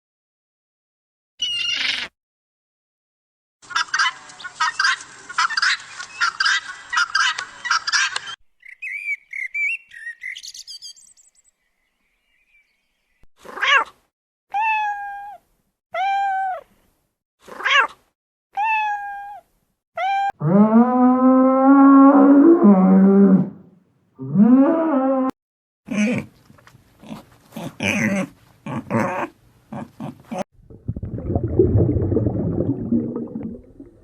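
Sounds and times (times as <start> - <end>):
harsh scratchy animal calls: 1.4 - 2.1
meow-like animal calls: 1.4 - 2.1.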